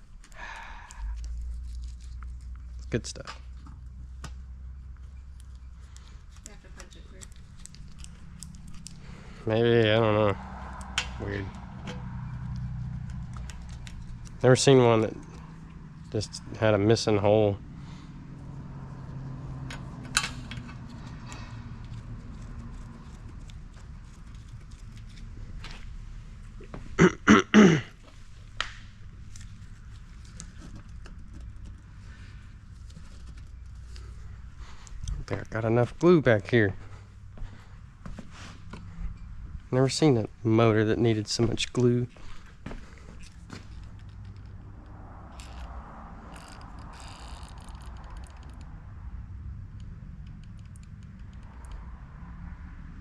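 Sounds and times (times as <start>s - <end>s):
engine parts clicking and scraping: 0.0s - 27.0s, 28.0s - 52.0s
low steady hum: 0.0s - 47.0s
man coughing: 27.0s - 28.0s.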